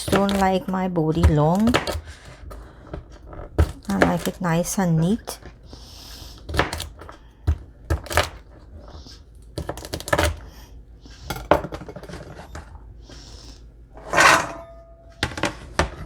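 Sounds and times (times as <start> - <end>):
knife chopping on cutting board: 0.0 - 0.6, 1.2 - 2.5, 6.4 - 8.4
knife scraping cutting board: 14.0 - 14.9.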